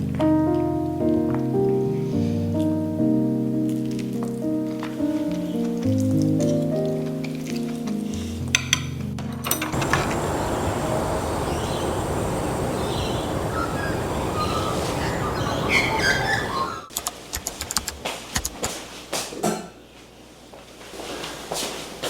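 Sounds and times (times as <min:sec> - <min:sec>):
music: 0:00.0 - 0:09.7
traffic noise: 0:09.7 - 0:16.9
small birds chirping: 0:09.8 - 0:16.9.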